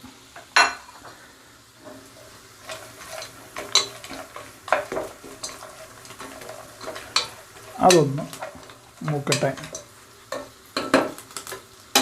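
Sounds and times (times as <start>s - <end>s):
food sizzling in a pan: 0.0s - 12.0s
spoon knocking against pan: 9.3s - 11.2s.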